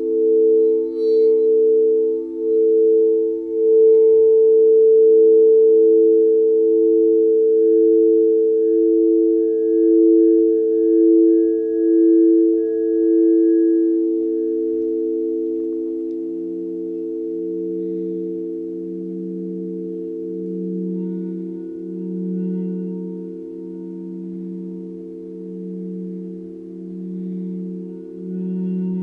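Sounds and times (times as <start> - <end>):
singing bowls ringing: 0.0 - 29.0.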